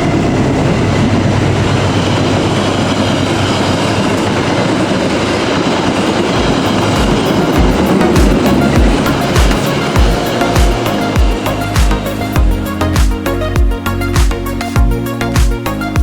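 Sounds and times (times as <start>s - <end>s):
train passing at speed: 0.0s - 14.0s
thudding music beat: 6.4s - 16.0s.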